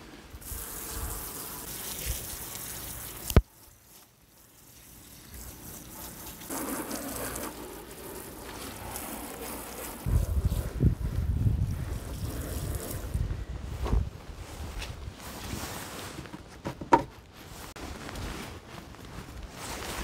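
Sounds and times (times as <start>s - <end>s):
water running: 0.4s - 10.2s
wind rumble on microphone: 10.0s - 15.7s.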